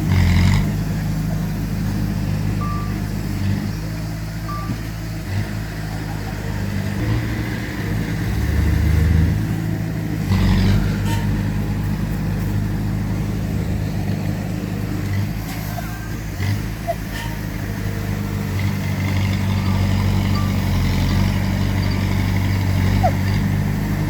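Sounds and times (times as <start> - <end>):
diesel machinery engine running: 0.0 - 24.0
short beeps: 2.6 - 3.0, 4.5 - 4.8.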